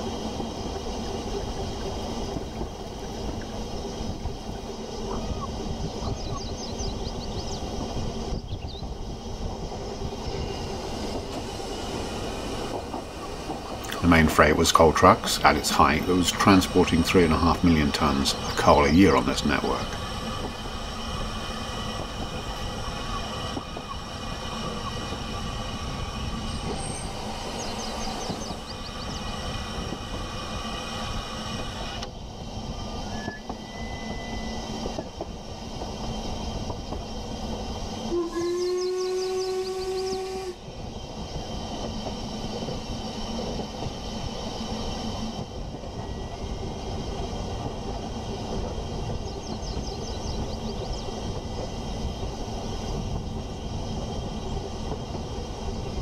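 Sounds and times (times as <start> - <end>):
train rumbling on rails: 0.0 - 56.0
train horn: 38.1 - 40.6.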